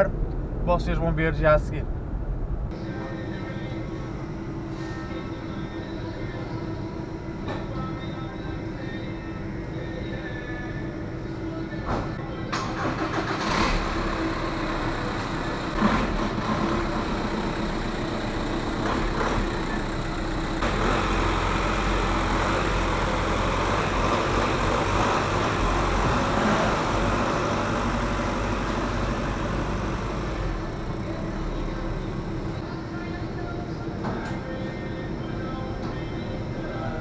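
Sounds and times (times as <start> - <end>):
car engine pulling away: 12.5 - 32.6.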